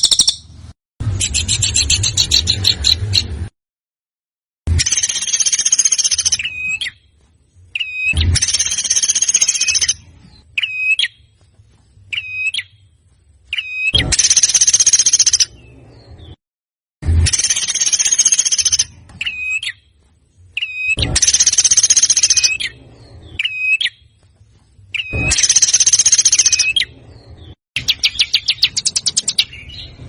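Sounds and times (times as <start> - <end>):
songbird rattling song: 0.0 - 3.5, 4.7 - 16.4, 17.2 - 30.0
sharp pitched bird notes: 24.9 - 30.0.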